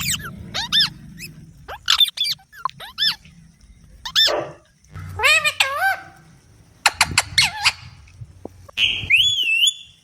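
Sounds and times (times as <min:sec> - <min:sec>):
parrots squeaky calls: 0:05.1 - 0:06.2, 0:06.9 - 0:08.0.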